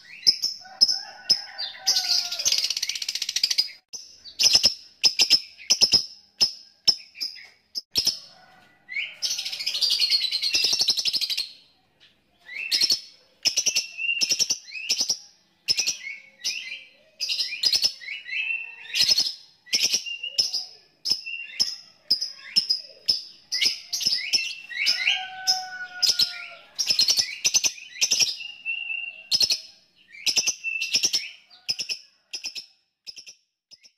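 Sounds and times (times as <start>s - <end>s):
lovebird chirping: 0.0s - 0.9s, 1.6s - 8.2s, 9.0s - 33.9s.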